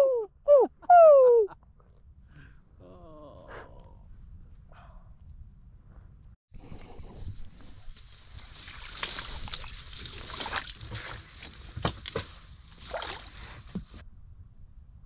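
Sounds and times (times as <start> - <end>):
water splashing and sloshing: 7.2 - 14.0
crackling rustles: 7.5 - 14.0.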